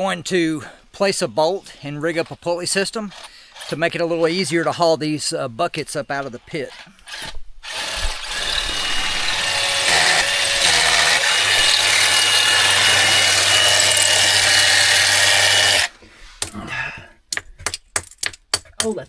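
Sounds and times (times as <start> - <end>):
power drill boring into rock: 7.1 - 16.6.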